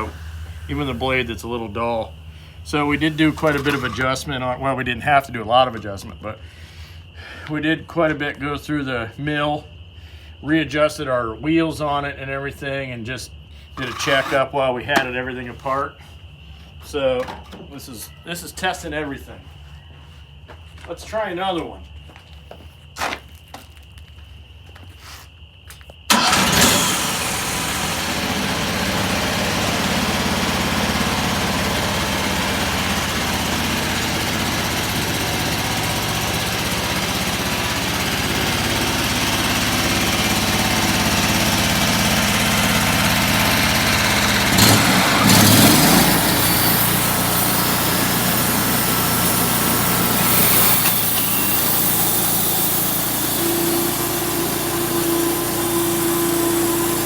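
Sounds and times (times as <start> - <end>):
band sawmill sawing log: 0.0 - 5.0, 13.7 - 15.2, 26.1 - 57.0.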